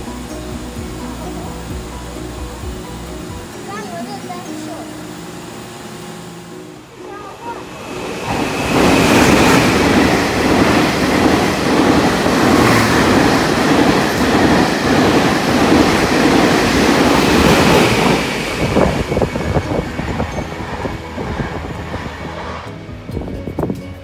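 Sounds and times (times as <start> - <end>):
passenger train passing: 0.0 - 24.0
train wheels clicking on rails: 7.4 - 24.0.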